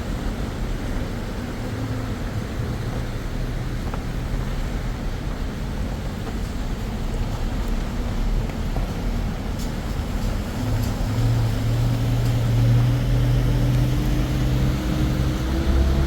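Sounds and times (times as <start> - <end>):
vehicle engine accelerating: 9.8 - 16.0.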